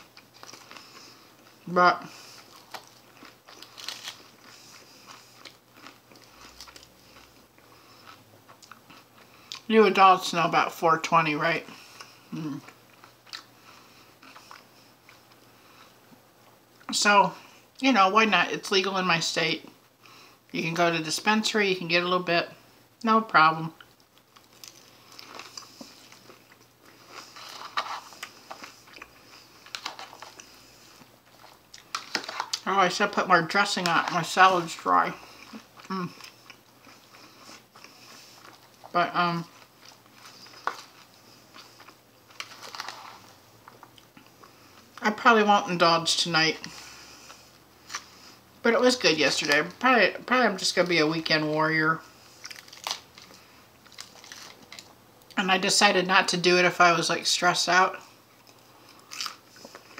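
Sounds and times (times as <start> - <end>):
person chewing crisp lettuce: 0.0 - 16.9, 23.8 - 45.1, 46.5 - 49.9, 52.0 - 55.4, 58.0 - 59.9.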